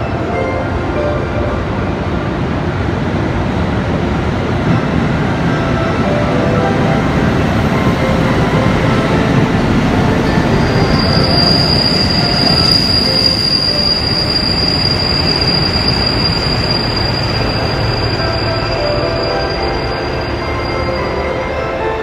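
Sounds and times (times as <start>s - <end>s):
diesel train rumbling past: 0.0s - 22.0s
high-pitched wheel squeal: 10.1s - 21.6s.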